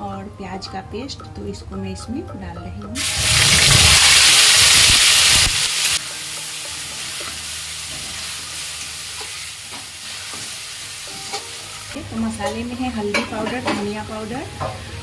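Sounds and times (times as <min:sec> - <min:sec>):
paste sizzling in hot oil: 0:03.0 - 0:11.9.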